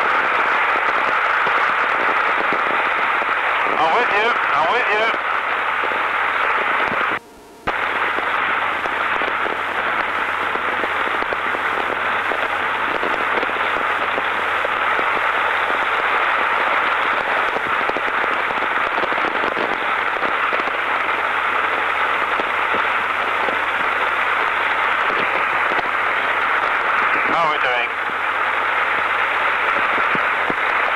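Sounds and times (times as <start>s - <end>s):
crackly hiss of wind and road: 0.0s - 30.9s
low hum: 5.6s - 16.6s.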